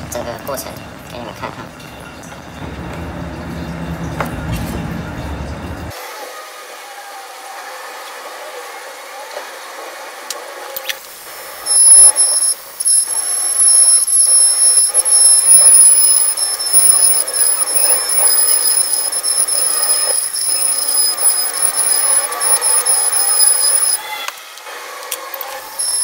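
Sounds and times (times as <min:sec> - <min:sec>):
hot air station hiss and whine: 0:05.9 - 0:26.0.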